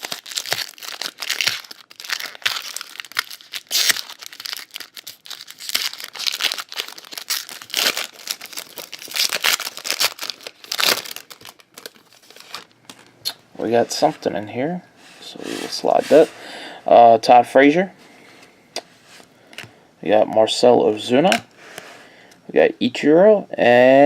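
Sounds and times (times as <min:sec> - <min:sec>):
wrapper being torn and crinkled: 0:00.0 - 0:13.4.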